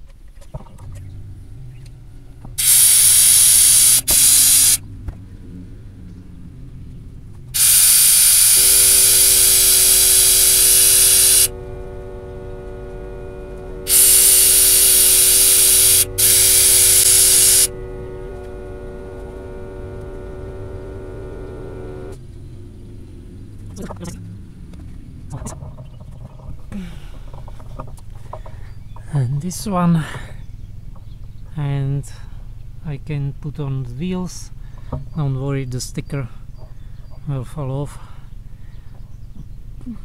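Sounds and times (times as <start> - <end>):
steady multi-pitch hum: 0.0 - 40.0
air hissing in bursts: 2.6 - 4.8, 7.5 - 11.6, 13.8 - 18.1.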